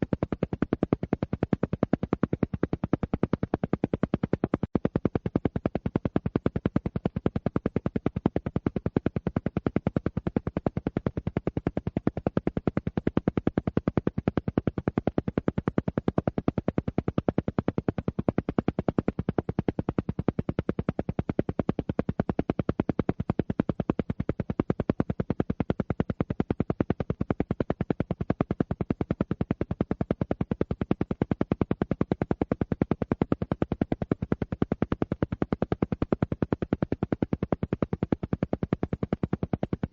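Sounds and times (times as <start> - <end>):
rapid evenly spaced pulses: 6.8 - 39.9.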